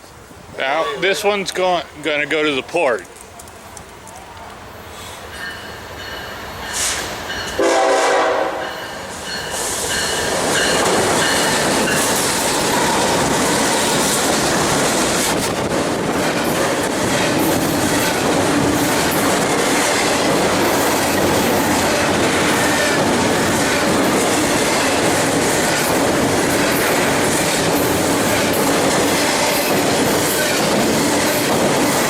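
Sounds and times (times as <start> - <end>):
freight cars rolling on rails: 0.1 - 32.0
locomotive horn blast: 7.6 - 8.7.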